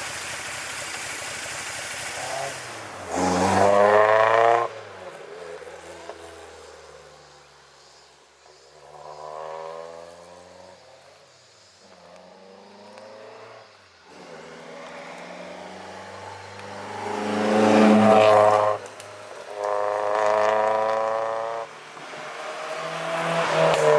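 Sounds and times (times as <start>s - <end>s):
car engine revving: 2.1s - 7.1s, 8.9s - 11.0s, 12.3s - 23.9s.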